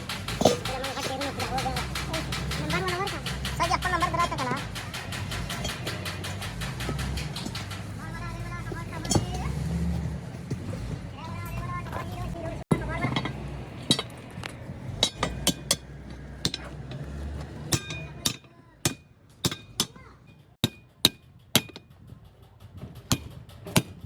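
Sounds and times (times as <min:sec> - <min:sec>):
hammer striking metal: 0:00.0 - 0:10.6, 0:12.7 - 0:22.0, 0:22.7 - 0:24.0.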